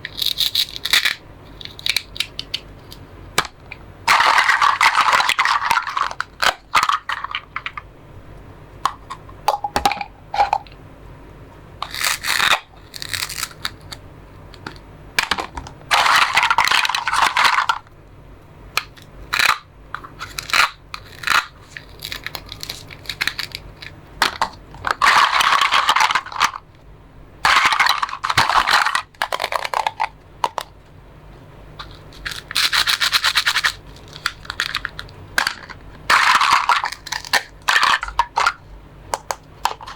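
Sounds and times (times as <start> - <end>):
toy knife cutting plastic food: 0.1 - 2.6, 11.8 - 14.0, 18.8 - 23.6, 32.2 - 35.0.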